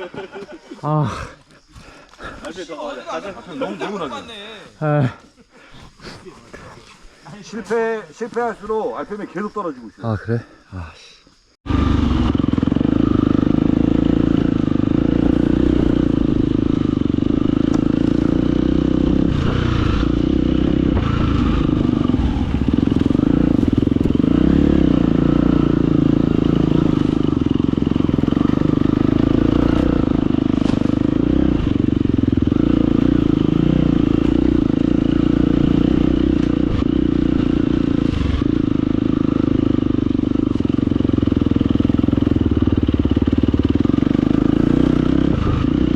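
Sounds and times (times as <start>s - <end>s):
dirt bike engine running: 11.6s - 45.9s
engine knocks and clatter: 11.7s - 45.9s.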